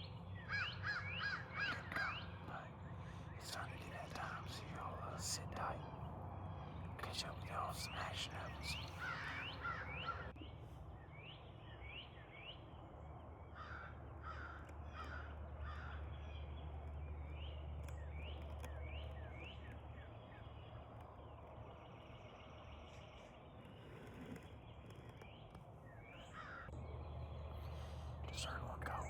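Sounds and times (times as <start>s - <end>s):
low steady hum: 0.0s - 29.0s
crows cawing: 0.5s - 4.4s, 8.7s - 10.3s, 13.6s - 16.3s, 26.3s - 26.7s.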